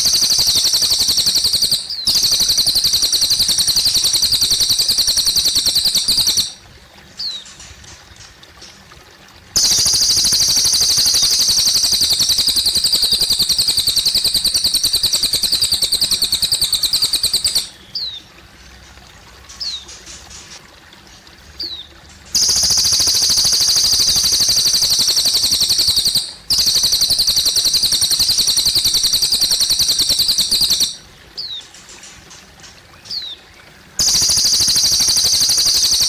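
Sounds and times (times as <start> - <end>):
bird high rapid trills: 0.0 - 6.6, 9.6 - 18.1, 22.4 - 33.2, 34.0 - 36.0
trickling water: 0.0 - 36.0.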